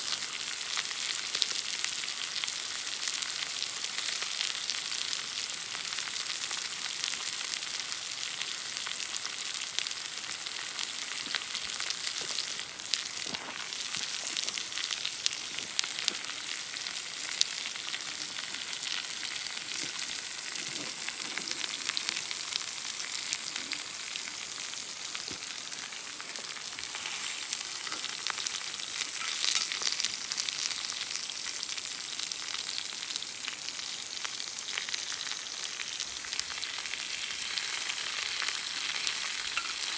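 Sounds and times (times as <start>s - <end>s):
steak sizzling: 0.0s - 39.9s
campfire pops and crackles: 9.0s - 31.1s.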